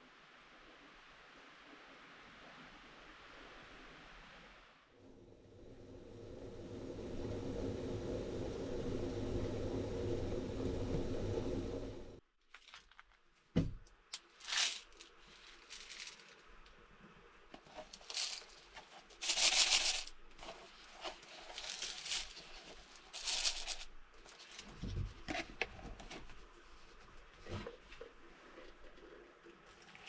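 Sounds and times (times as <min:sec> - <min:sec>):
rustling and crinkling: 0:12.4 - 0:30.0.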